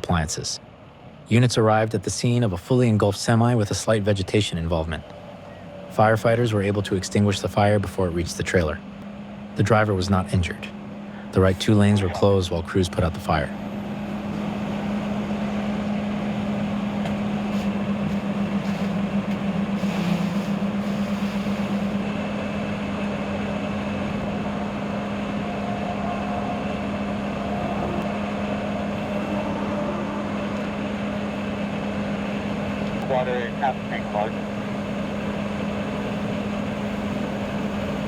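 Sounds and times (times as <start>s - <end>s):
large engine running: 0.0s - 38.0s
hiss of noise: 19.8s - 22.0s.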